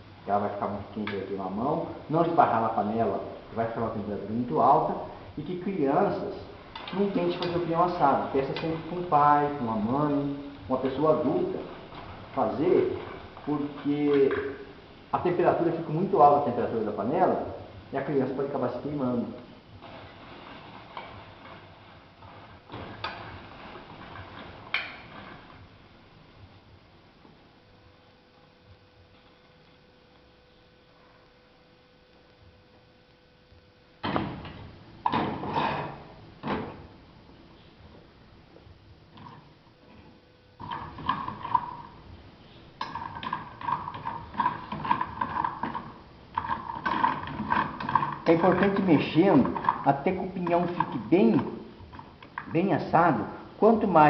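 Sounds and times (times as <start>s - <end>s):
seeds and spoon scraping in pan: 6.6s - 16.0s, 19.6s - 25.7s.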